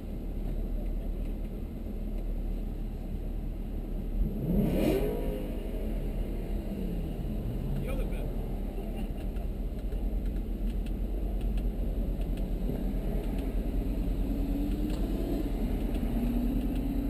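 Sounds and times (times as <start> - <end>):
car engine idling: 5.4 - 17.0.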